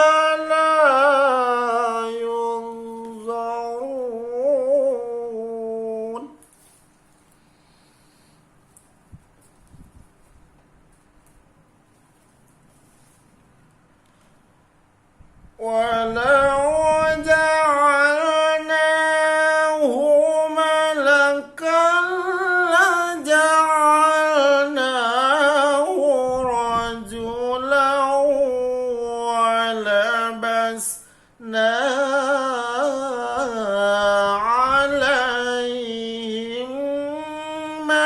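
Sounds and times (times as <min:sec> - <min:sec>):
person reciting melodically: 0:00.0 - 0:06.7, 0:15.5 - 0:38.0.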